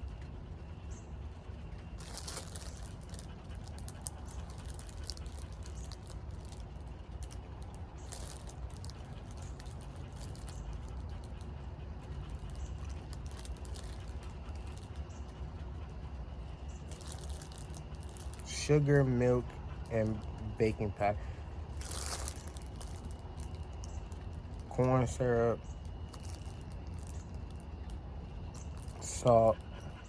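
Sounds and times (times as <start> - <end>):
chewing: 1.8 - 18.5, 21.2 - 24.7, 25.7 - 30.0
food wrapper crinkling: 2.0 - 11.4, 12.3 - 14.9, 16.8 - 18.5, 21.5 - 24.7, 25.8 - 28.0.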